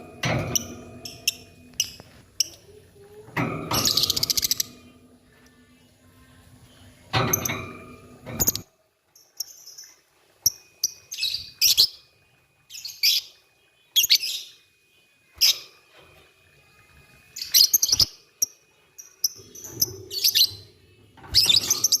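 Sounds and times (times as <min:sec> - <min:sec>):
lovebirds chirping: 0:08.4 - 0:15.8, 0:17.3 - 0:22.0.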